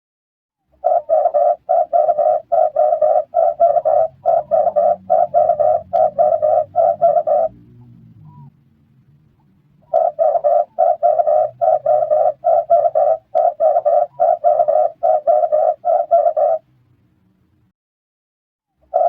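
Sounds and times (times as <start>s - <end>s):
dove cooing: 0.7s - 8.6s, 9.8s - 16.7s.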